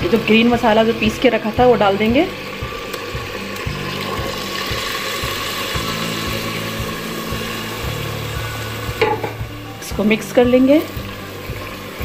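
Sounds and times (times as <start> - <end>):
chicken sizzling in oil: 0.0 - 12.0
sauce being poured: 2.4 - 9.5.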